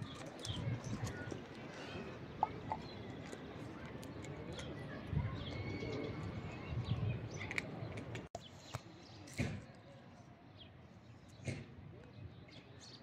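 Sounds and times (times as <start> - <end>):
birds chirping and cooing: 0.0 - 9.3.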